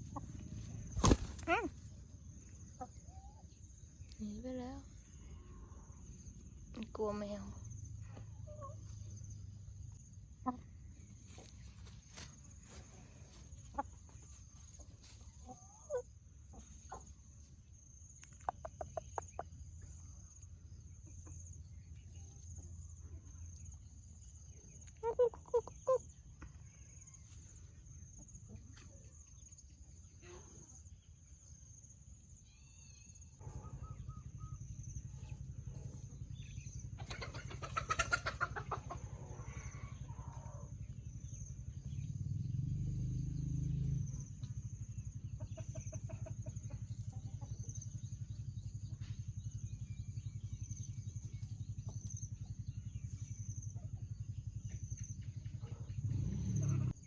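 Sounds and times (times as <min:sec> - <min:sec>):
hens clucking: 0:00.0 - 0:04.6, 0:08.0 - 0:09.2, 0:09.9 - 0:17.6, 0:18.2 - 0:20.1, 0:24.5 - 0:27.4, 0:33.4 - 0:42.0, 0:45.0 - 0:48.3.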